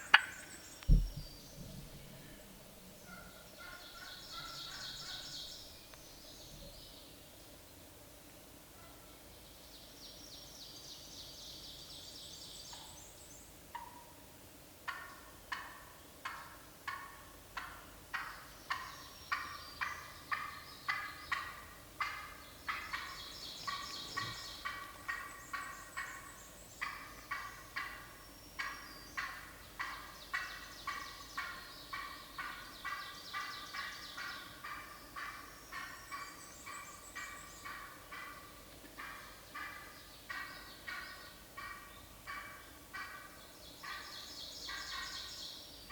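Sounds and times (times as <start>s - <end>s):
wild turkey yelping: 0.0s - 1.1s, 1.8s - 5.5s, 19.3s - 45.2s
songbird trills: 0.0s - 7.2s, 22.3s - 38.1s.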